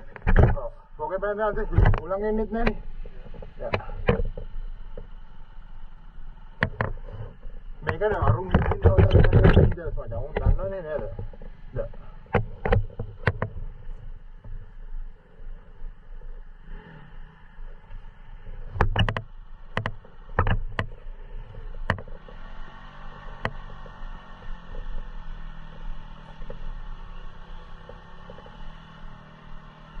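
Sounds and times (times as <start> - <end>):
dirt bike engine running: 0.0 - 30.0
sharp knocks: 7.8 - 11.5.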